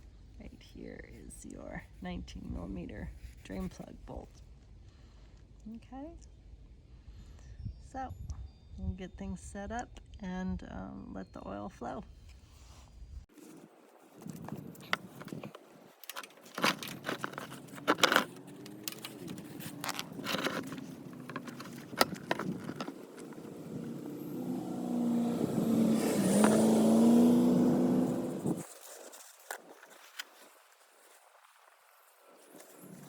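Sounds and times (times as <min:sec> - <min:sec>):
tools clicking and scraping: 0:14.2 - 0:24.0, 0:26.3 - 0:26.8
engine-like humming: 0:16.6 - 0:28.6.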